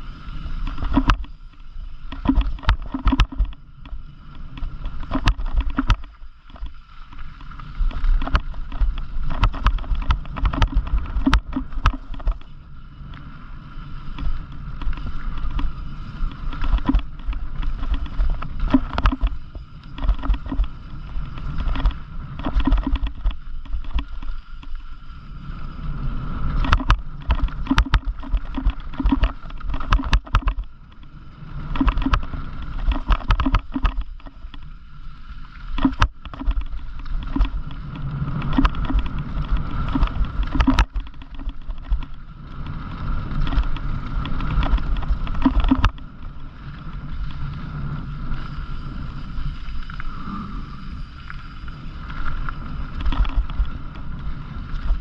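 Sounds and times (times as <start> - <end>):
bike rattling over bumps: 0.0 - 55.0
tyres rumbling on gravel: 0.0 - 55.0
wind buffeting microphone: 35.8 - 55.0.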